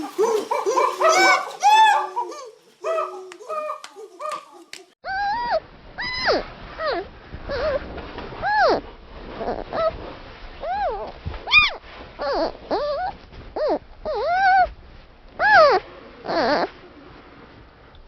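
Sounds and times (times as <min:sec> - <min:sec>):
young animal crying out: 0:00.0 - 0:04.3, 0:05.0 - 0:07.8, 0:15.4 - 0:16.7.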